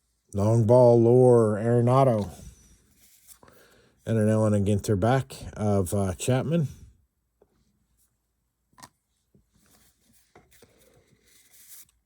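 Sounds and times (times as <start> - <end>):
trading cards rustling: 9.6 - 12.0.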